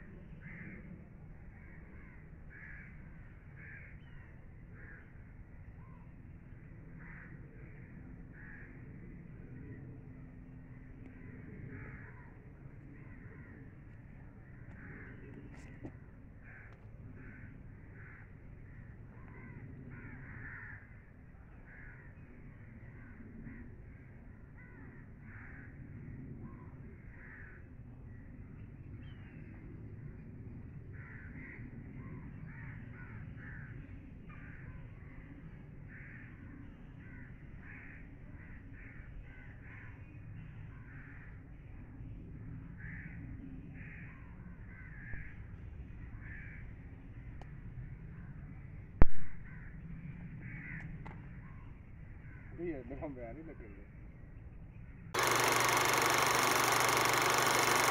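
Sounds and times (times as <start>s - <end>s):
birds calling: 0.0s - 25.7s, 55.2s - 57.9s.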